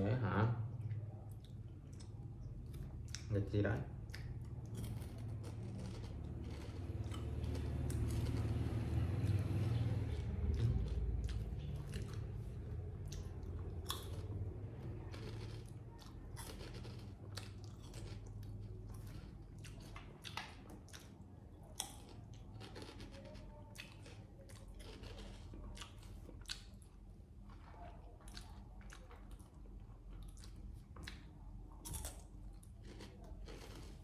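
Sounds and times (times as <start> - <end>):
monkey crunching potato chips: 4.5 - 9.8, 15.0 - 18.8.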